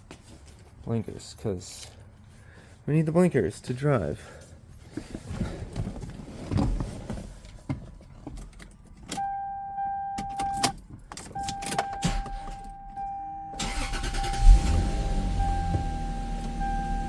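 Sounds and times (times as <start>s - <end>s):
car keys jangling: 10.1s - 13.0s.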